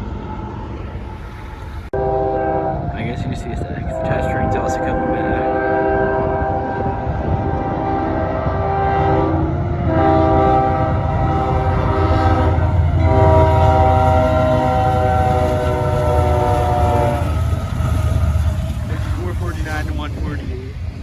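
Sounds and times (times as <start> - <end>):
moving train rumble: 0.0 - 21.0
locomotive air horn: 2.0 - 18.6.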